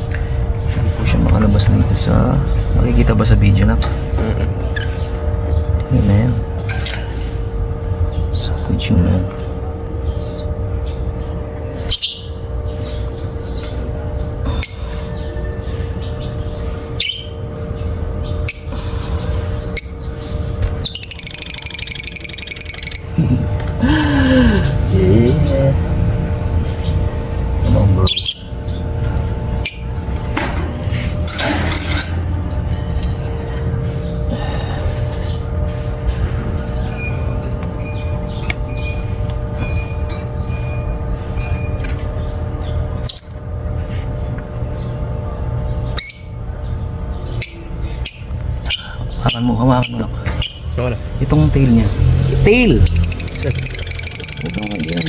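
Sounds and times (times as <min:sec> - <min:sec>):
low rumble and hum: 0:00.0 - 0:55.0
bird chattering chirps: 0:08.0 - 0:23.6, 0:24.4 - 0:30.1, 0:33.5 - 0:44.1, 0:44.7 - 0:55.0
bird shrill calls: 0:20.8 - 0:23.2, 0:52.9 - 0:55.0.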